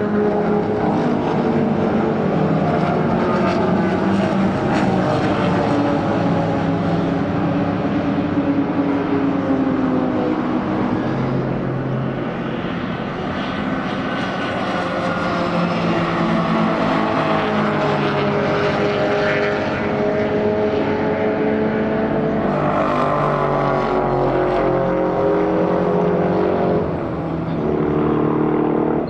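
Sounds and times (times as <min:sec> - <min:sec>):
racing car engines revving: 0:00.0 - 0:29.0.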